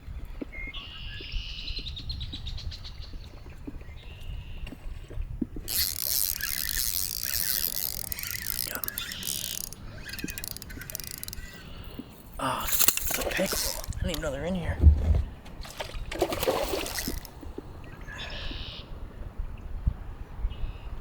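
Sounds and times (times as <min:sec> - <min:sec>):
fishing reel ratcheting clicks: 0:05.7 - 0:14.4, 0:16.5 - 0:17.4
fish splashing at water surface: 0:15.6 - 0:17.4.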